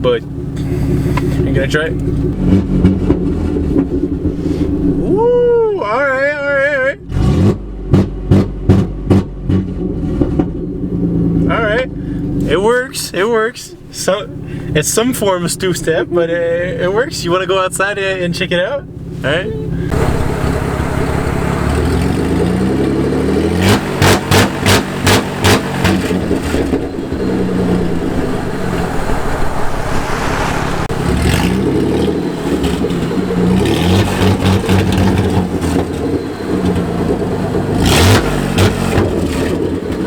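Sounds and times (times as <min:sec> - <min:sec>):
truck engine revving: 0:00.0 - 0:06.1, 0:07.0 - 0:12.7, 0:13.7 - 0:40.0
rev limiter stutters: 0:11.1 - 0:40.0.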